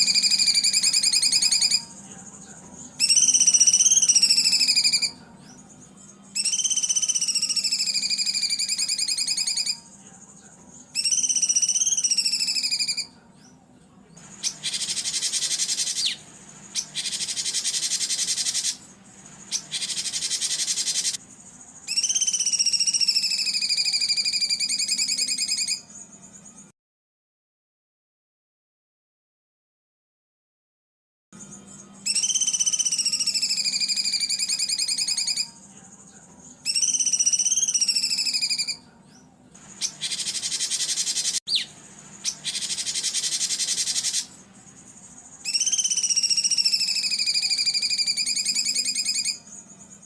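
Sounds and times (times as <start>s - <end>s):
songbird trilled whistles: 0.0s - 2.0s, 2.9s - 9.9s, 10.9s - 13.6s, 14.2s - 21.2s, 21.8s - 26.0s, 31.4s - 35.7s, 36.6s - 50.0s
buzzy bird calls: 0.0s - 10.3s, 14.2s - 26.0s, 39.6s - 50.0s
faint recording hum: 0.0s - 26.7s, 31.4s - 50.0s.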